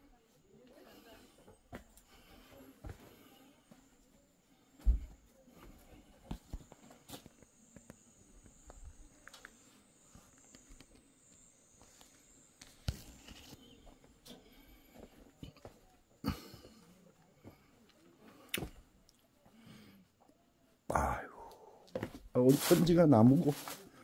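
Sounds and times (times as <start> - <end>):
footsteps: 4.8 - 9.5, 21.9 - 24.0.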